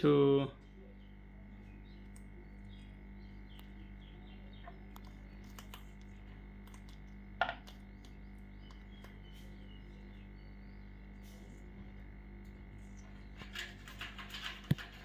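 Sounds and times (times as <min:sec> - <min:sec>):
steady electrical hum: 0:00.0 - 0:15.0
parrot clicks and chirps: 0:04.6 - 0:09.7.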